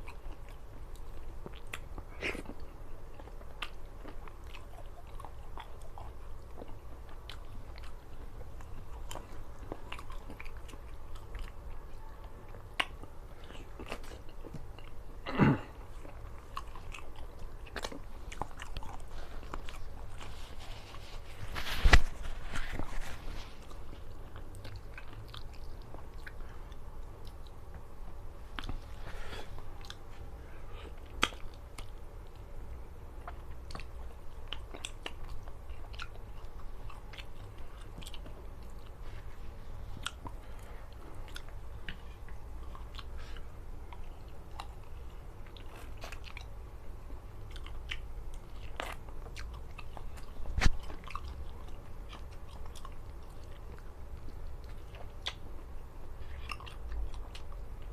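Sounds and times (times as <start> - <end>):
person chewing food: 0.0 - 57.9.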